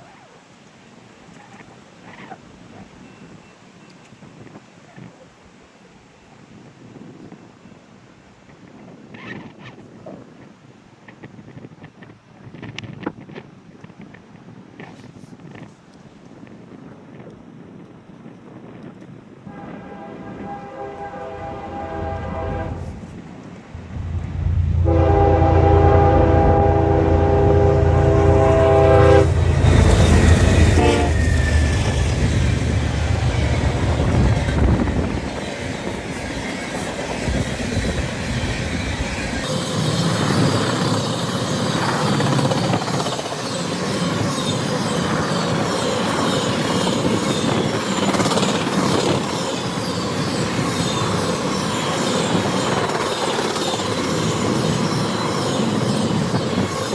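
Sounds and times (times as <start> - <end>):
locomotive horn chord: 19.5 - 23.2, 23.8 - 31.4
locomotive engine rumble: 19.5 - 39.4
train wheels clattering on rail: 29.1 - 56.9.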